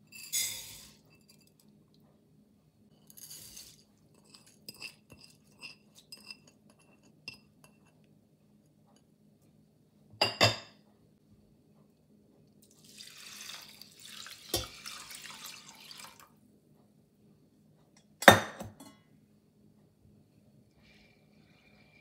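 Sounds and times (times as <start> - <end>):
glass or ceramic clinking: 10.2 - 10.7
water pouring: 12.6 - 16.4.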